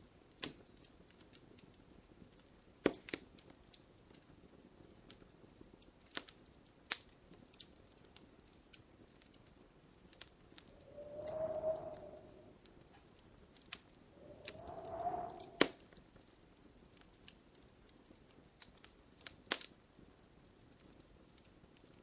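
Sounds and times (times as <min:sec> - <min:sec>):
wood fire crackling: 0:00.3 - 0:12.6, 0:13.5 - 0:15.8, 0:16.9 - 0:22.0
log hissing whistle: 0:10.8 - 0:12.6, 0:14.2 - 0:15.8.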